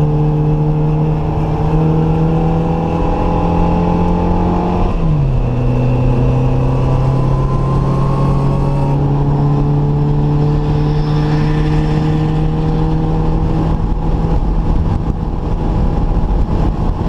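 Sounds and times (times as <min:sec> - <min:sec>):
car engine revving high: 0:00.0 - 0:17.0
road and wind noise: 0:00.0 - 0:17.0.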